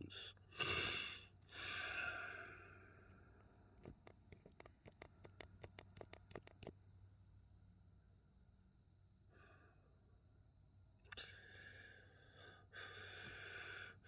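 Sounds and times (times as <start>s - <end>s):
faint breath: 0.0s - 3.5s, 9.3s - 10.0s, 11.1s - 14.0s
faint sharp clicks: 3.8s - 6.7s.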